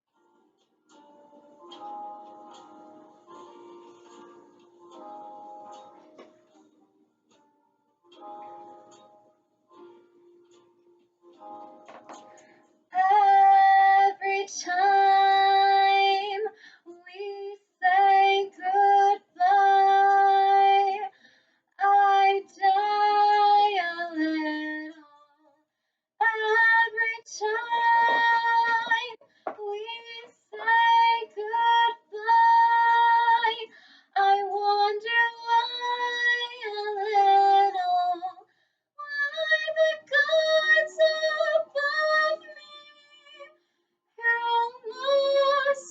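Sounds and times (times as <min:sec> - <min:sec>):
child singing: 0:13.0 - 0:21.1, 0:21.8 - 0:25.1, 0:26.2 - 0:38.4, 0:39.0 - 0:43.5, 0:44.2 - 0:45.9.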